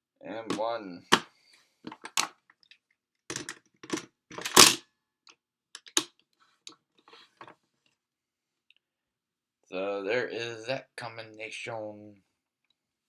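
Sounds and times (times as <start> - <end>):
plastic toy parts clicking together: 1.9 - 4.8, 5.8 - 6.1.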